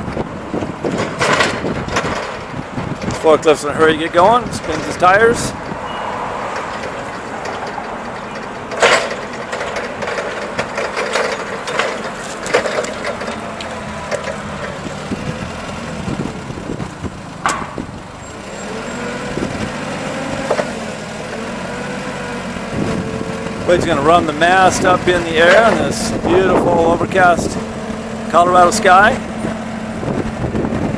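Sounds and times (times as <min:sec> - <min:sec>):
forklift engine running: 0:00.0 - 0:30.9
machine knocks and rattles: 0:00.8 - 0:03.2, 0:06.5 - 0:14.9.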